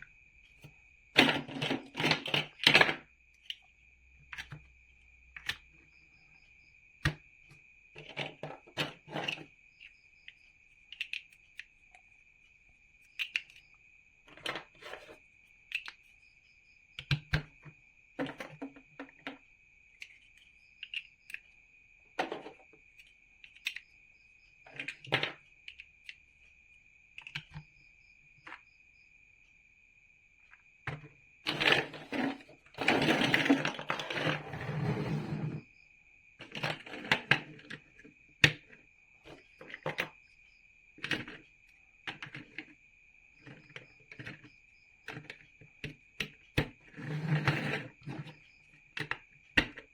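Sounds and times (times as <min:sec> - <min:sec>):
plastic bricks rattling and shuffling: 0:00.6 - 0:03.1, 0:08.0 - 0:09.5, 0:14.2 - 0:15.2, 0:17.2 - 0:19.4, 0:22.2 - 0:22.7, 0:24.7 - 0:25.4, 0:30.9 - 0:35.6, 0:36.4 - 0:40.2, 0:41.0 - 0:41.4, 0:42.1 - 0:42.8, 0:43.4 - 0:48.4
plastic bricks clicking together: 0:04.3 - 0:04.6, 0:10.9 - 0:11.7, 0:13.2 - 0:13.6, 0:14.3 - 0:16.1, 0:17.0 - 0:17.5, 0:20.0 - 0:21.4, 0:22.2 - 0:23.8, 0:24.7 - 0:26.2, 0:27.2 - 0:27.6, 0:30.8 - 0:35.2, 0:42.0 - 0:42.7.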